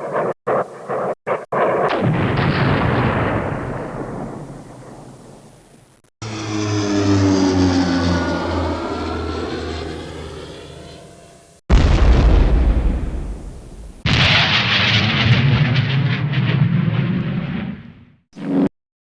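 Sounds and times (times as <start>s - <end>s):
sharp bangs: 0.0s - 6.0s, 8.5s - 18.0s
aircraft flying over droning: 6.2s - 11.6s
aircraft passing: 6.2s - 11.6s.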